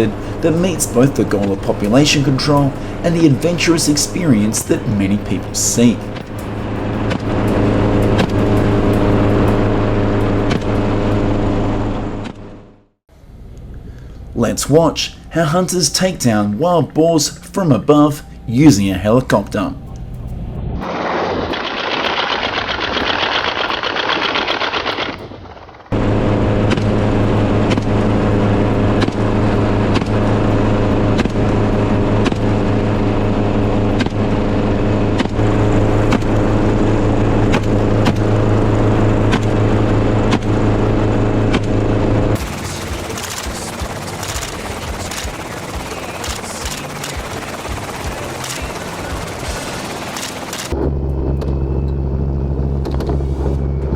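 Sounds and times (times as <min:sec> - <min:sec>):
helicopter drone: 0:00.0 - 0:53.9.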